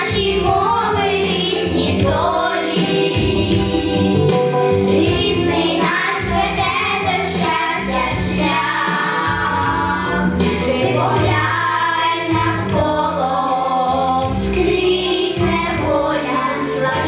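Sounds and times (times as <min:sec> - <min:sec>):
instrumental accompaniment: 0:00.0 - 0:17.0
child singing: 0:05.0 - 0:10.0, 0:10.7 - 0:17.0.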